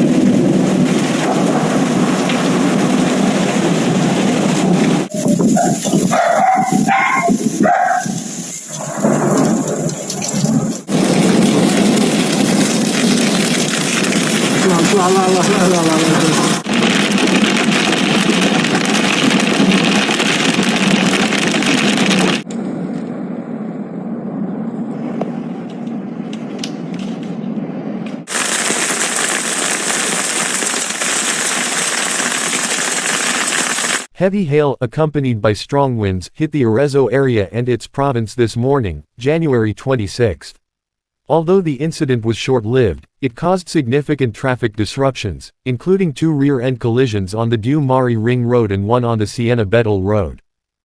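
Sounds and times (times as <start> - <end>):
strong wind: 0.0 - 14.6, 16.2 - 28.6
hail and rain pelting down: 0.1 - 22.4, 28.3 - 34.1.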